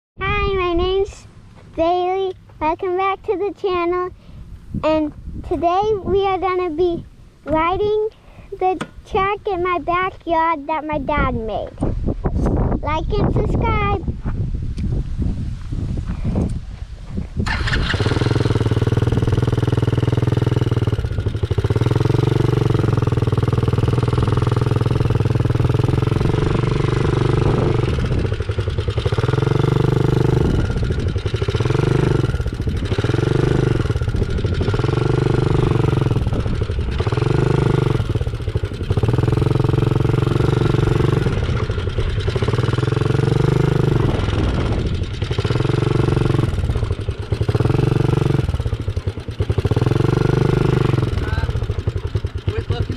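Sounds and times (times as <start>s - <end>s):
dirt bike engine revving: 17.4s - 52.9s.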